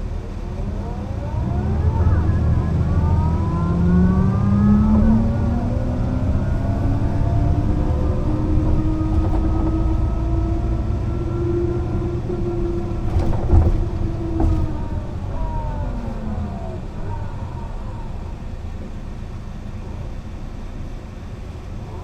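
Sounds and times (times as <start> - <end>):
bus engine running: 0.0 - 22.0
knocks and rattles: 6.4 - 10.4, 12.4 - 17.2.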